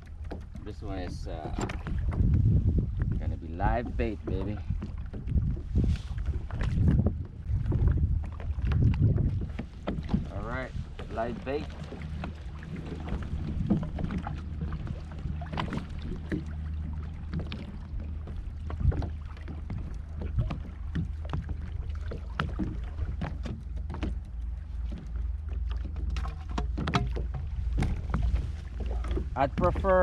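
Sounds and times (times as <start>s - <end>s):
fishing gear clicks and knocks: 0.2s - 2.4s, 20.5s - 30.0s
steady low rumble: 0.6s - 30.0s.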